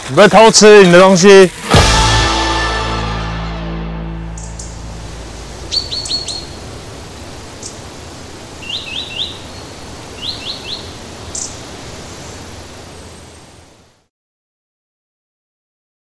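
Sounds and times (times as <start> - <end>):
forest background hiss: 0.0 - 14.1
birds chirping: 4.3 - 14.0.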